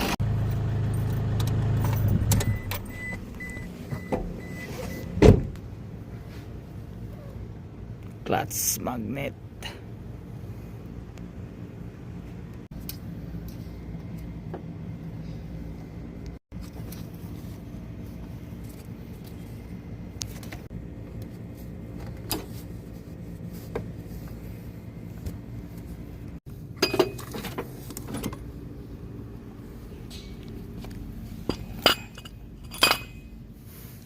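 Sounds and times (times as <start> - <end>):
steady low hum: 2.0 - 34.0
metal parts clinking: 31.4 - 33.4.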